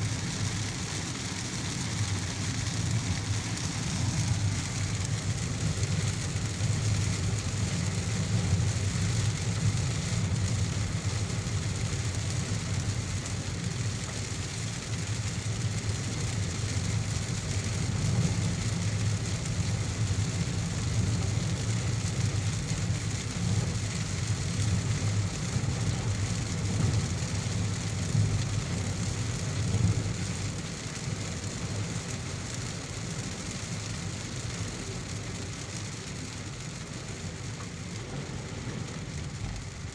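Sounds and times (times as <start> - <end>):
car engine and road rumble: 0.0 - 39.9
rain hissing: 0.0 - 39.9.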